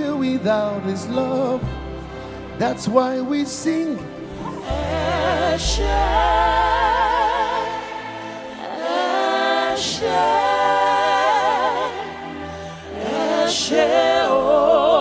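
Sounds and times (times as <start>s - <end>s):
voices singing with vibrato: 0.0s - 15.0s
sustained low bass notes: 4.0s - 8.2s.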